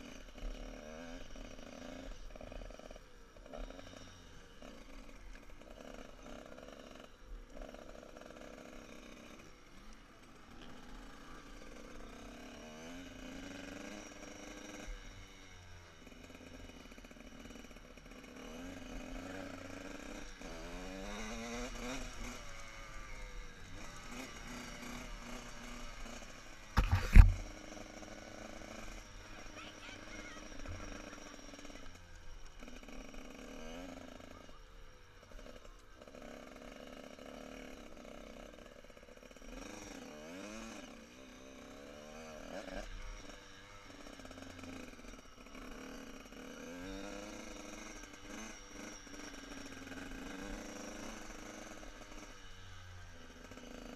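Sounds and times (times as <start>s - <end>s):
motorbike engines revving: 0.0s - 53.9s
loud thump: 26.8s - 27.4s.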